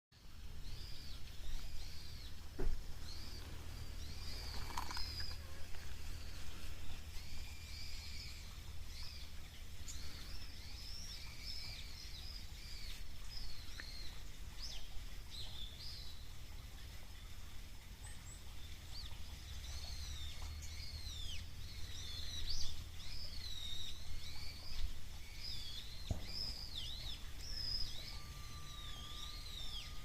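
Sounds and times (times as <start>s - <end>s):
low outdoor rumble: 0.2s - 30.0s
small birds chirping: 0.2s - 30.0s.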